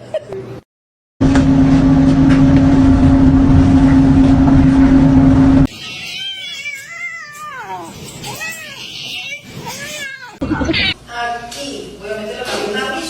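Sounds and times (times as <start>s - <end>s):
loud machine hum: 1.2s - 5.7s
cat meowing: 5.7s - 11.0s.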